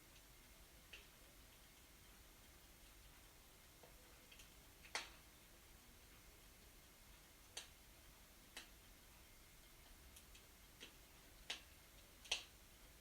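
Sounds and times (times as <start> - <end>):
wood fire crackling and popping: 0.9 - 5.3, 6.9 - 9.0, 9.7 - 13.0.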